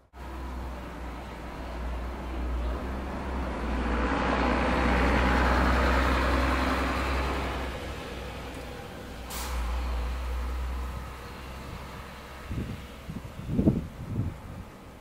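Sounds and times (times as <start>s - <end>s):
road vehicle passing: 0.0s - 15.0s.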